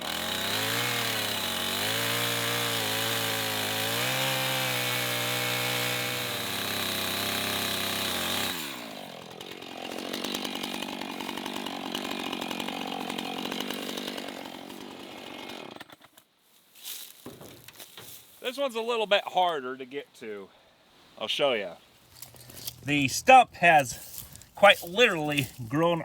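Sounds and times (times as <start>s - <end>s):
chainsaw running: 0.0s - 16.2s, 22.2s - 26.0s.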